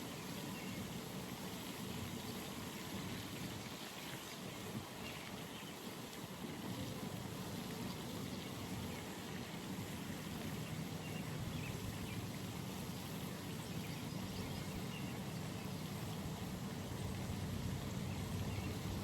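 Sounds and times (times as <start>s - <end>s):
low pond rumble: 0.0s - 19.0s.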